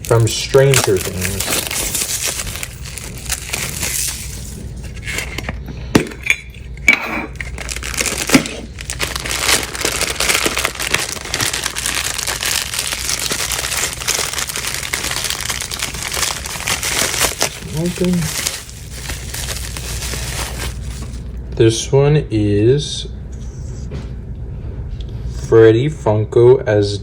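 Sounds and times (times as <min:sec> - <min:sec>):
plastic packaging crinkling: 0:00.0 - 0:06.2, 0:07.3 - 0:21.5.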